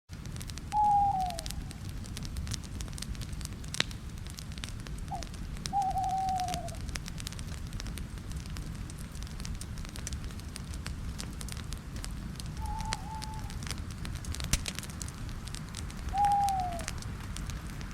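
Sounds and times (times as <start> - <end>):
campfire crackling and popping: 0.1 - 17.9
low steady rumble: 0.2 - 17.9
bird calling: 0.8 - 1.6, 5.1 - 6.8, 12.6 - 13.6, 16.1 - 16.9.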